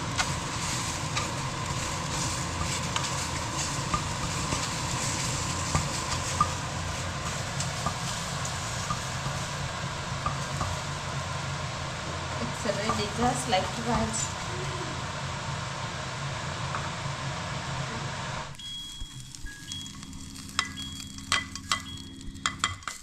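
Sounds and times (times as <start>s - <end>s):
low steady hum: 0.0s - 22.9s
eggs sizzling in a pan: 0.0s - 23.0s
small pops and crackles: 18.5s - 23.0s.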